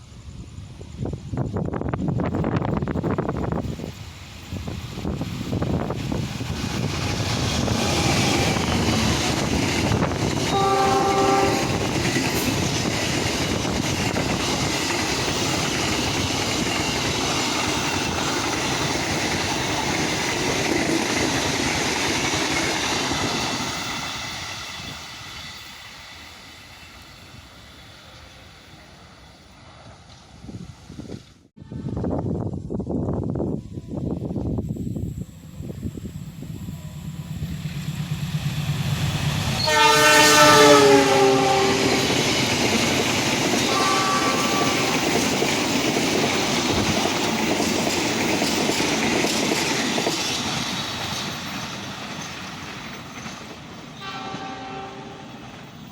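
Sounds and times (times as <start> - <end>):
train wheels rumbling and clacking: 0.0 - 31.3, 34.2 - 55.9
train horn blast: 10.4 - 12.5, 39.6 - 42.3, 43.6 - 45.3, 54.0 - 55.4.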